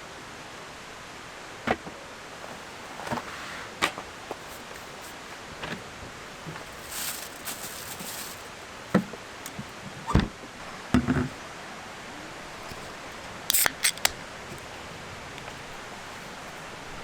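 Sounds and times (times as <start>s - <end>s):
steady outdoor hiss: 0.0s - 17.0s
brief rustle: 6.4s - 8.7s.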